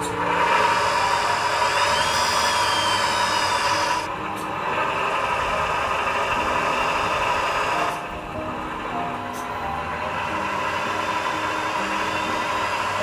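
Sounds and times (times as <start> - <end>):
small motor whirring: 0.0 - 8.1
high hiss: 0.0 - 13.0.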